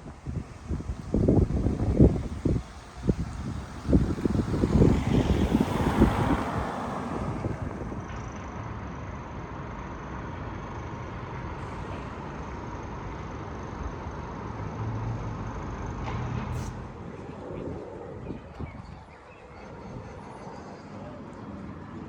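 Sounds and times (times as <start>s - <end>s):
traffic hum: 0.0s - 22.0s
vehicle passing: 2.0s - 8.1s.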